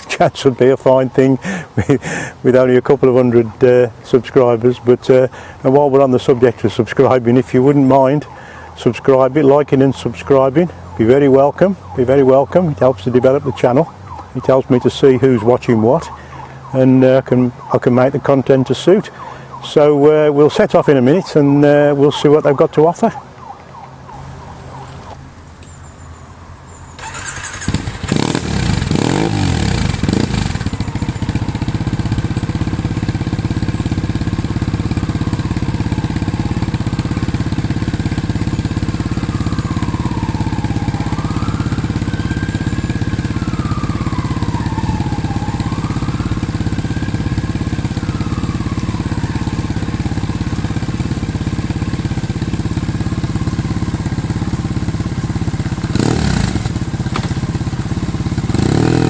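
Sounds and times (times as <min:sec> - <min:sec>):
distant siren wailing: 0:00.0 - 0:01.9, 0:02.5 - 0:59.0
motorcycle engine revving and idling: 0:00.0 - 0:18.9, 0:26.9 - 0:59.0.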